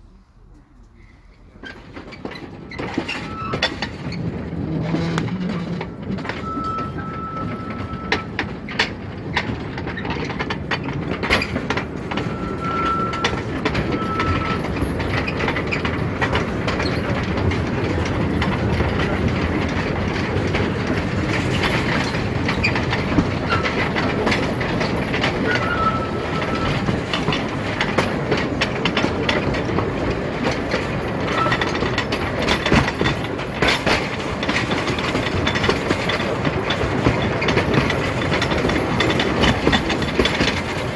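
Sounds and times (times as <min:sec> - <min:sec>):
train wheels clattering on rails: 0:01.2 - 0:40.9
wheels squeaking: 0:01.2 - 0:40.9.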